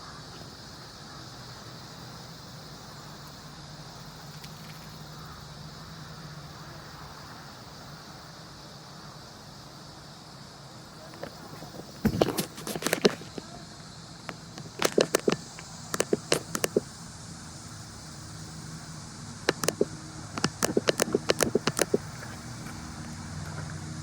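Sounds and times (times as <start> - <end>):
steady low hum: 10.7 - 24.0
bursts of sharp clicks: 14.2 - 16.9, 19.4 - 23.2.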